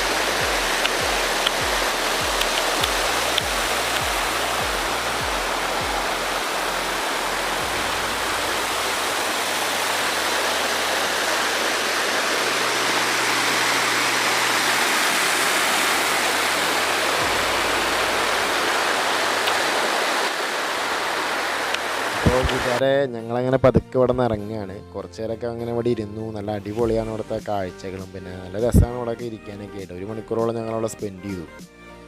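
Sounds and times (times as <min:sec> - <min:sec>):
waterfall rushing: 0:00.0 - 0:22.8
soft background music: 0:00.0 - 0:32.0.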